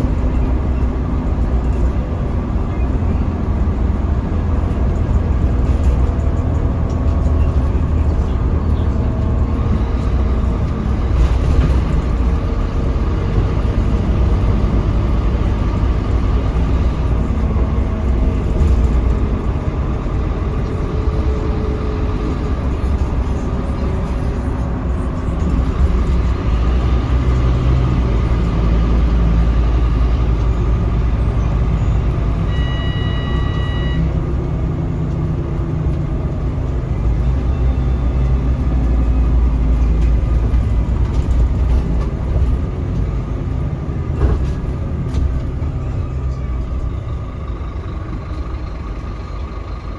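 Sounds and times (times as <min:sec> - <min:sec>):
bus diesel engine rumble: 0:00.0 - 0:49.9
road and cabin noise: 0:00.0 - 0:49.9
short electronic beep: 0:32.5 - 0:34.2.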